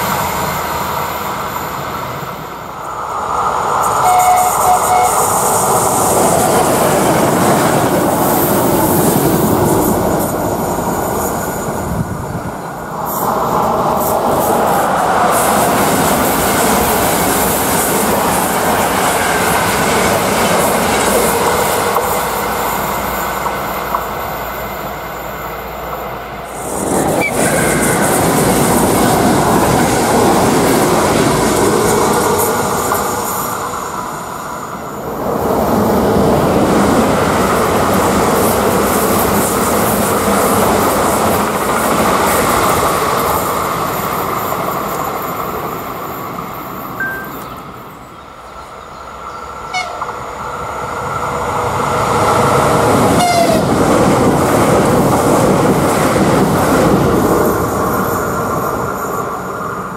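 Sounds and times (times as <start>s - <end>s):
electric train passing at speed: 0.0s - 59.9s.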